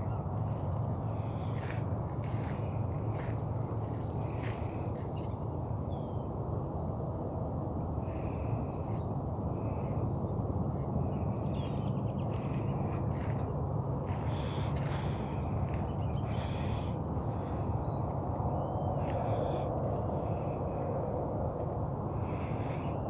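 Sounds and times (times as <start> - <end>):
low outdoor rumble: 0.0 - 23.0
birds chirping and whistling: 14.3 - 19.8.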